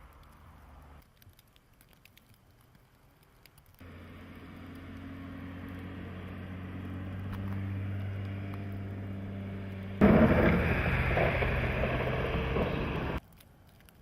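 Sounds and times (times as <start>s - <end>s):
car engine running: 3.8s - 13.2s
loud rushing noise: 10.0s - 13.2s.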